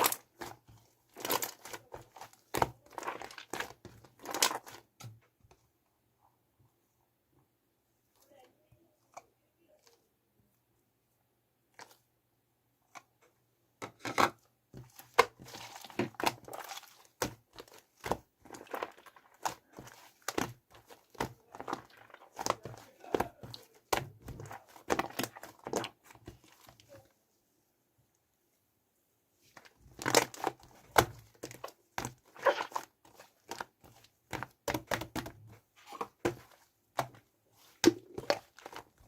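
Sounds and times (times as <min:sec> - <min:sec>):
shaving foam squelching: 0:14.8 - 0:27.0, 0:29.6 - 0:39.0.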